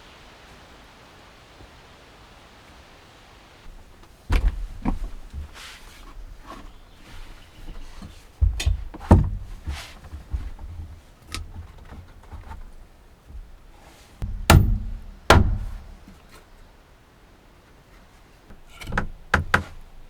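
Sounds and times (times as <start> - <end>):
heavy thuds and knocks on wood: 3.7 - 5.6, 7.7 - 10.9, 14.2 - 16.2.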